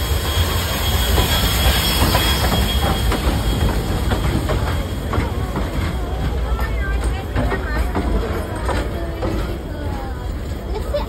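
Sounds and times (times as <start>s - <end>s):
high wheel squeal: 0.0s - 7.0s
train low rumble: 0.0s - 11.0s
wheels clicking over rail joints: 1.2s - 11.0s.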